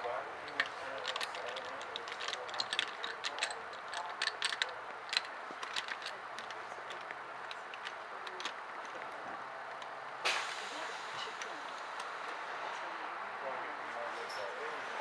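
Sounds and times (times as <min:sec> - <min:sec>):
train carriage running noise: 0:00.0 - 0:15.0
light clicks and ticks: 0:00.5 - 0:10.0.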